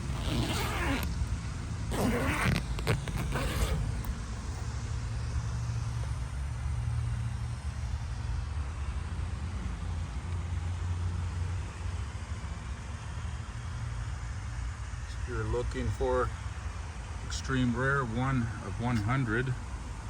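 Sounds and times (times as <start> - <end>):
motor vehicle rumble: 0.0 - 8.5.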